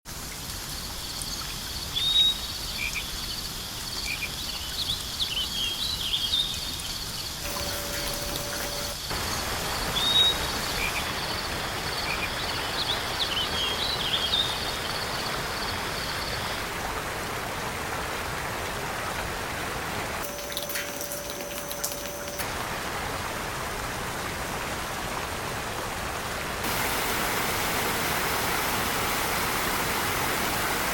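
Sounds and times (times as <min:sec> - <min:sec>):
steady rushing hiss: 0:26.6 - 0:30.9.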